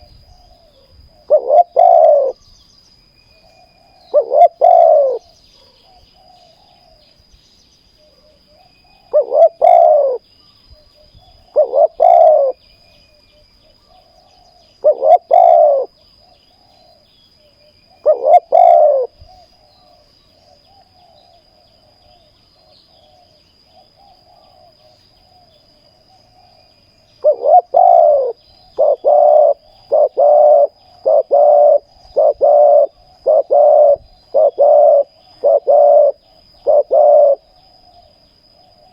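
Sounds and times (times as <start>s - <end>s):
dove cooing: 0.0s - 2.4s, 3.4s - 7.0s, 8.1s - 10.2s, 11.2s - 12.6s, 13.9s - 17.0s, 17.9s - 20.0s, 27.2s - 38.1s.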